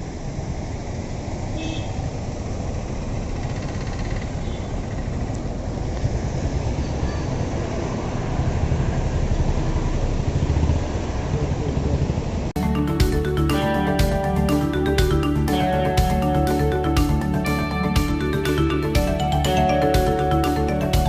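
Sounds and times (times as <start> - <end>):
vehicle road and wind noise: 0.0 - 13.2
music: 12.6 - 21.0.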